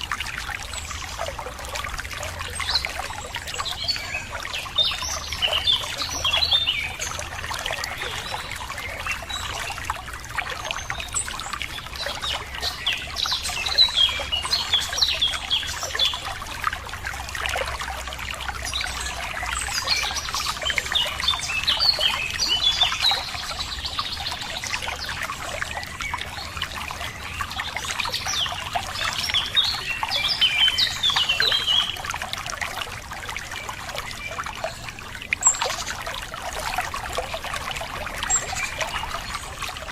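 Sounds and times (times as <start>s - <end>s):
water trickling and splashing: 0.0s - 39.9s
small birds chirping: 0.6s - 16.6s.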